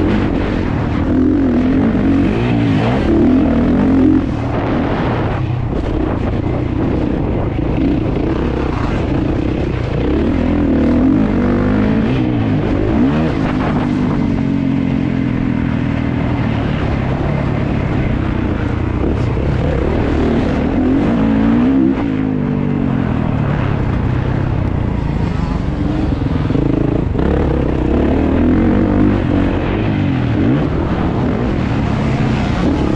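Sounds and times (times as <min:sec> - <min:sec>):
motocross engine revving: 0:00.0 - 0:06.2, 0:06.8 - 0:15.4.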